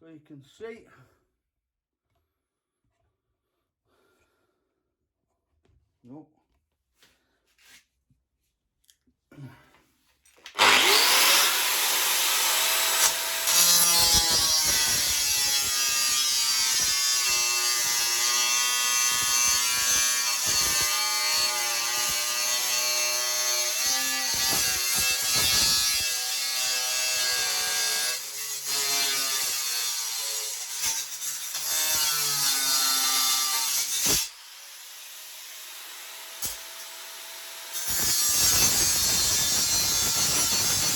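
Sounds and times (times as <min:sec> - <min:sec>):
angle grinder cutting steel: 0:10.5 - 0:40.9.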